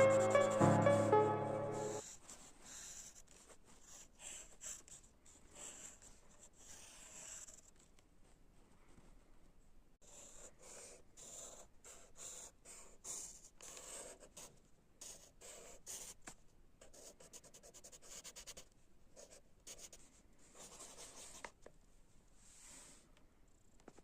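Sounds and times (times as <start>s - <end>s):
pencil scratching on paper: 0.0s - 7.8s, 10.0s - 16.2s, 16.8s - 20.0s, 20.6s - 21.6s.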